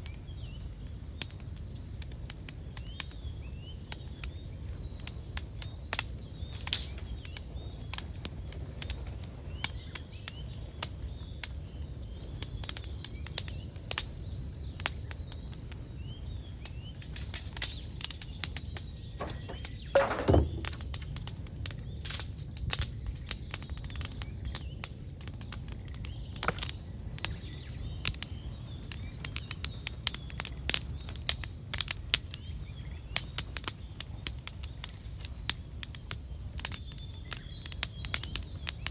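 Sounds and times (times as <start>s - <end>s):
small birds chirping: 0.0s - 8.2s, 8.9s - 21.1s, 21.7s - 38.9s
bonfire crackling and popping: 0.1s - 38.9s
loud pop or thump: 19.2s - 20.8s.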